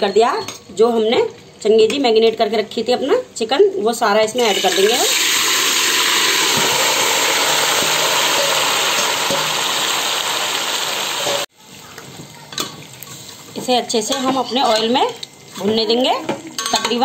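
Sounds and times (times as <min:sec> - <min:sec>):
chicken sizzling in hot oil: 0:04.4 - 0:16.6.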